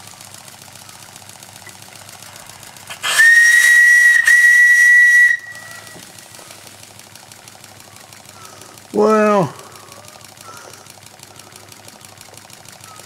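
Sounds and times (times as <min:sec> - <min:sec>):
model steam engine beating: 0:00.0 - 0:13.0
steam whistle blasts: 0:02.9 - 0:06.0.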